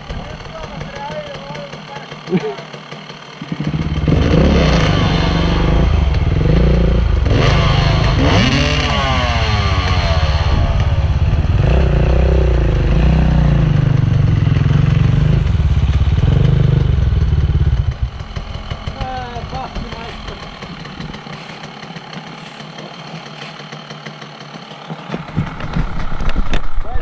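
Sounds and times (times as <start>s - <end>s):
dirt bike engine revving: 0.0s - 26.5s
clatter and scraping: 17.8s - 27.0s.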